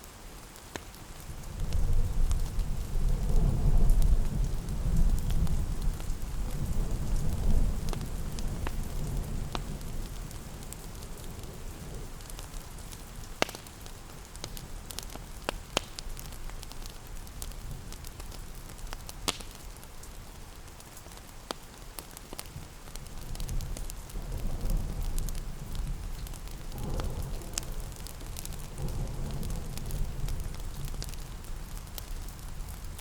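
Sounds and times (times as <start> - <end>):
steady rain: 0.0 - 33.0
wood fire crackling and popping: 0.0 - 33.0
low thunder rumble: 1.4 - 13.4, 23.2 - 33.0.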